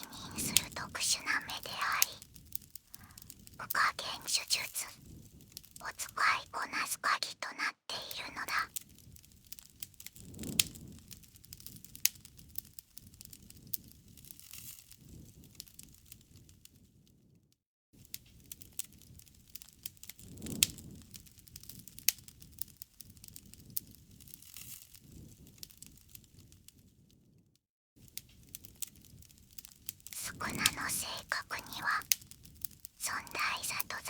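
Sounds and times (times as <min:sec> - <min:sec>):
campfire crackling: 0:00.0 - 0:06.8, 0:28.3 - 0:34.0.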